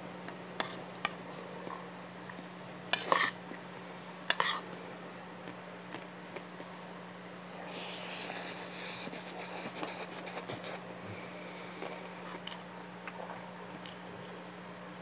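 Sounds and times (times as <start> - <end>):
steady low hum: 0.0 - 15.0
chewing food: 7.7 - 14.4.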